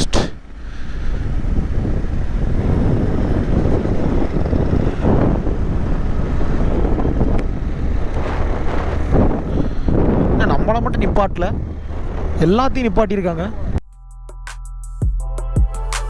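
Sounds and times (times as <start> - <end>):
wind rumbling on microphone: 0.0 - 13.8
motorcycle running: 1.2 - 9.5.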